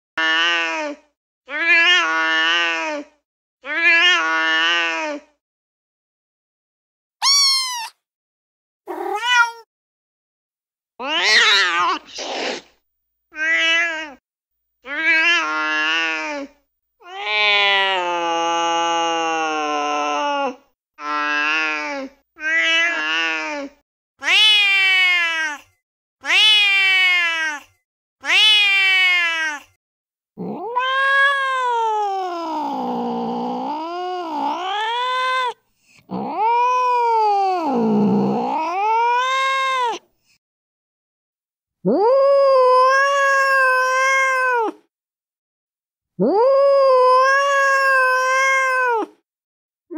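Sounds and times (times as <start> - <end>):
cat meowing: 3.7 - 5.0, 7.2 - 8.0, 8.9 - 9.7, 11.0 - 12.6, 13.3 - 14.2, 14.9 - 16.3, 17.0 - 18.3, 22.4 - 25.6, 26.2 - 29.7, 30.4 - 40.0, 41.9 - 44.8, 46.2 - 49.2.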